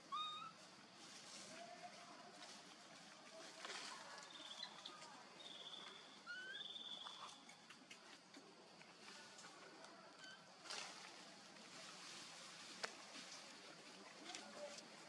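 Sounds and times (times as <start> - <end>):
background hiss: 4.0 - 15.0
high whistled bird calls: 4.3 - 7.4.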